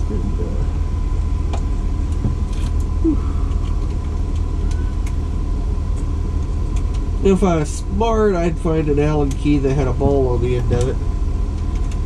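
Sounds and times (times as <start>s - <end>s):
faint thin whine: 0.0s - 11.0s
low background hum: 0.0s - 12.0s.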